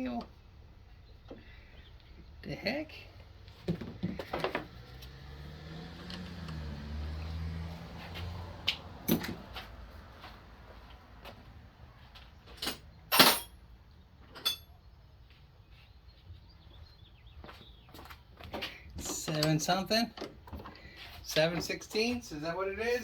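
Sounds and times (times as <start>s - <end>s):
metal tools clinking: 12.6s - 13.6s, 14.3s - 14.7s.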